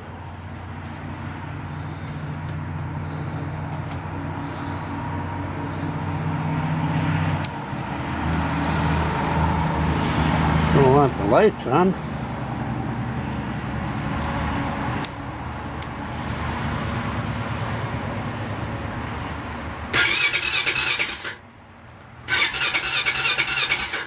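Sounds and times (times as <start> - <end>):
steady low rumble: 0.0 - 8.2
electric starter cranking: 19.9 - 21.4, 22.3 - 24.0.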